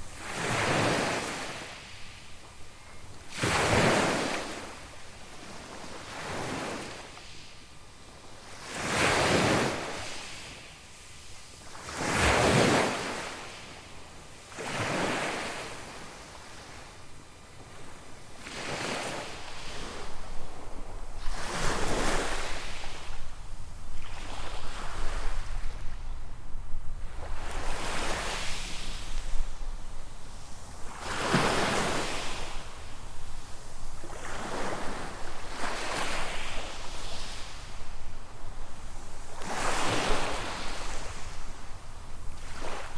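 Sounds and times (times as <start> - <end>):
small waves breaking on sand: 0.0 - 2.4, 3.2 - 7.6, 8.4 - 13.9, 14.5 - 17.0, 17.6 - 42.9
wind buffeting microphone: 19.4 - 35.9.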